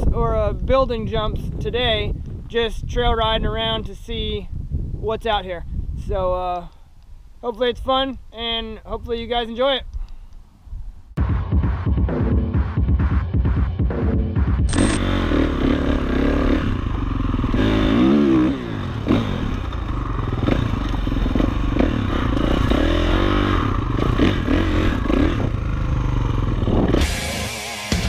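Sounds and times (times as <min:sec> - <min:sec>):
dirt bike engine revving: 0:14.7 - 0:28.0.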